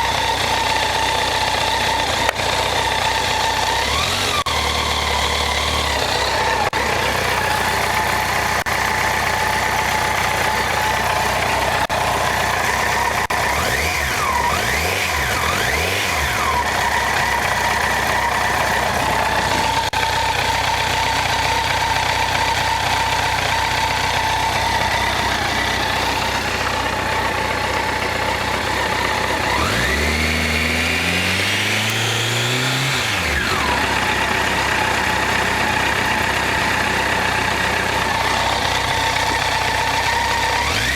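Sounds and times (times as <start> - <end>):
motorcycle engine idling and revving: 0.0 - 40.9.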